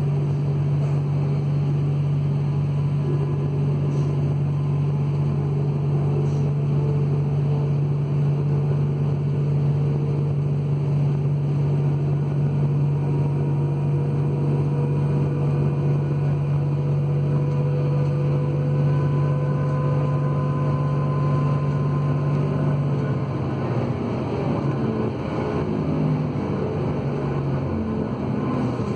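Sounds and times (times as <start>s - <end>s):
train diesel engine drone: 0.0s - 28.9s
whine rising in pitch: 12.3s - 28.9s.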